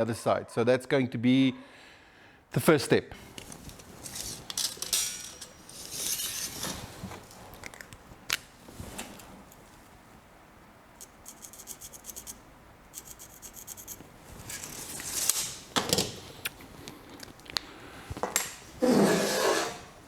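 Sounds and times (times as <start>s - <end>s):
metal rubbing and scraping: 3.2s - 7.5s, 11.0s - 15.7s, 18.8s - 20.0s.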